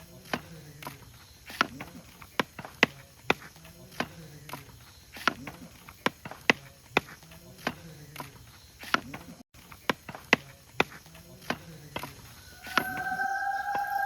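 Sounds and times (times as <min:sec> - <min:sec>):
faint low wavering tones: 0:12.4 - 0:14.0.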